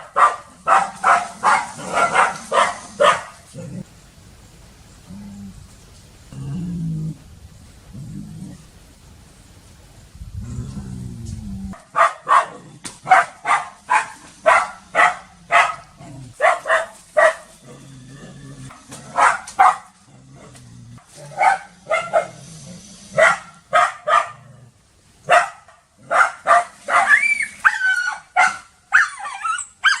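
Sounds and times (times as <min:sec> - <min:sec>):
dog barking: 0:00.0 - 0:03.4, 0:11.8 - 0:17.5, 0:19.1 - 0:20.0, 0:21.3 - 0:22.4, 0:23.2 - 0:24.5, 0:25.3 - 0:30.0
dog whining: 0:29.0 - 0:30.0.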